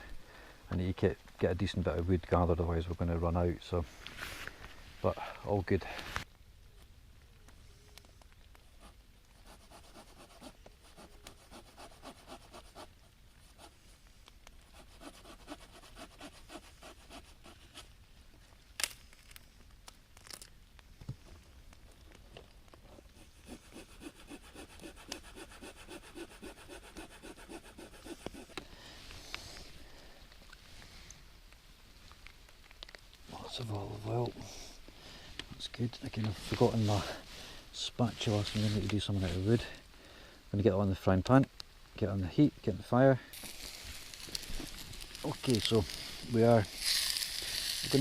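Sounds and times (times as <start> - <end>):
hand saw cutting wood: 23.4 - 28.6.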